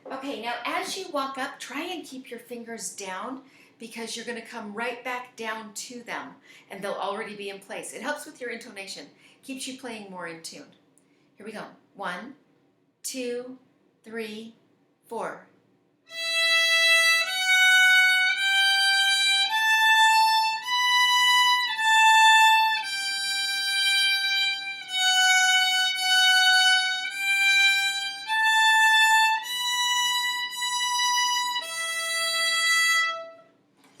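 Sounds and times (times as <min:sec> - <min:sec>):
violin playing slow bowed notes: 0:16.1 - 0:33.5.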